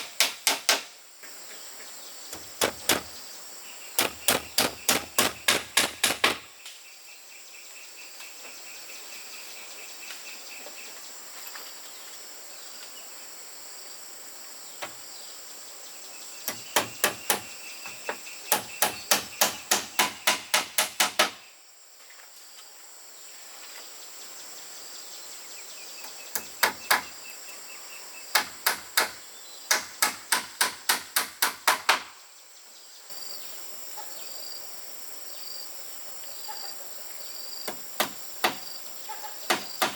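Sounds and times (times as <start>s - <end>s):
insects droning: 0.0s - 39.9s
hammer strikes: 2.4s - 3.1s, 4.0s - 6.5s, 18.5s - 21.4s.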